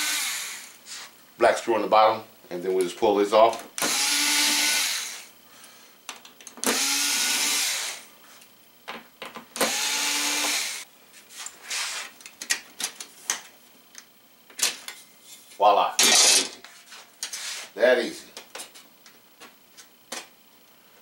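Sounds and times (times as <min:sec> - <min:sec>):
electric screwdriver running: 0:00.0 - 0:00.7, 0:03.8 - 0:05.3, 0:06.6 - 0:08.1, 0:09.6 - 0:10.9.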